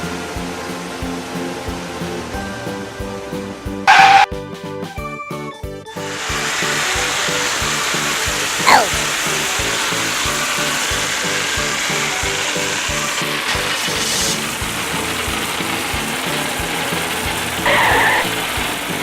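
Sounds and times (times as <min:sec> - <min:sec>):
bouncy children's music: 0:00.0 - 0:19.0
falling whistle: 0:03.9 - 0:04.3, 0:17.6 - 0:18.4
buzzing hiss: 0:06.0 - 0:19.0.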